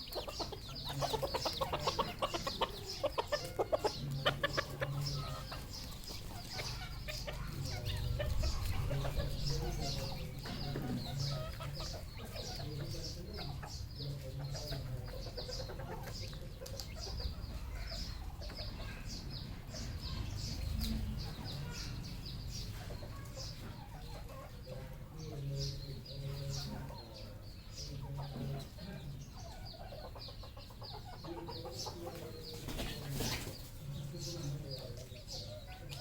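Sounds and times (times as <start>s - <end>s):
junglefowl clucking: 0.0s - 18.9s.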